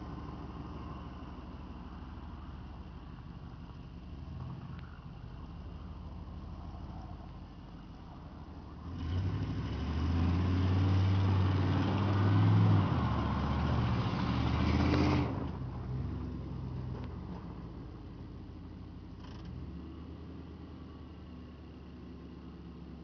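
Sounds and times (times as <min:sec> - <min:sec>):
truck engine revving hard: 0:08.8 - 0:15.6.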